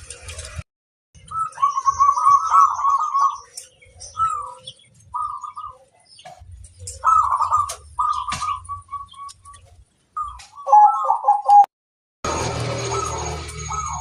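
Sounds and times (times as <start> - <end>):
dove cooing: 1.3 - 6.0, 6.8 - 9.6, 10.2 - 11.7
faint high twittering: 12.3 - 14.0.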